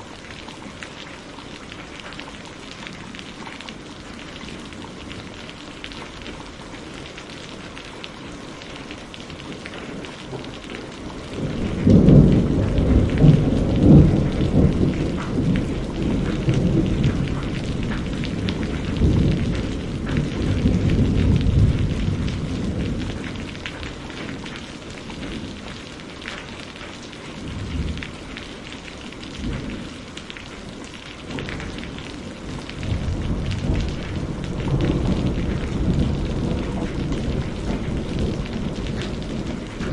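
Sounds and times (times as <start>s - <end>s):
steady rain falling: 0.0s - 39.9s
thunder rumbling: 9.4s - 25.8s, 31.3s - 39.9s.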